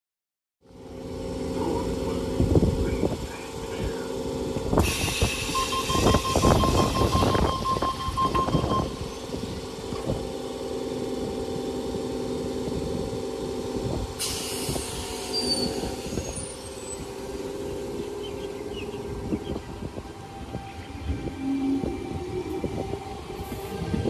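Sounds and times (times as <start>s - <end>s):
train mechanical hum: 0.6s - 24.0s
air hiss: 4.8s - 6.6s, 14.2s - 17.2s.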